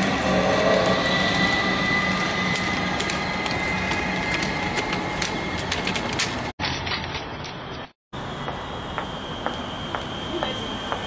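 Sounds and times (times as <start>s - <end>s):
thin high whine: 0.0s - 5.7s
electric train rumbling: 0.0s - 6.5s, 8.2s - 11.0s
wheels clicking over rail joints: 0.0s - 7.9s.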